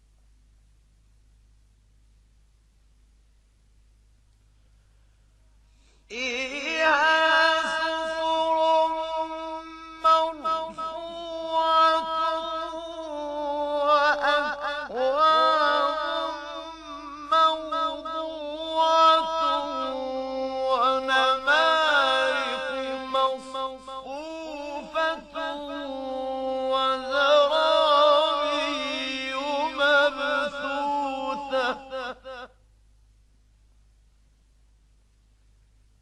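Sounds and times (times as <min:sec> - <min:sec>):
man chanting melodic recitation: 0:06.1 - 0:32.5.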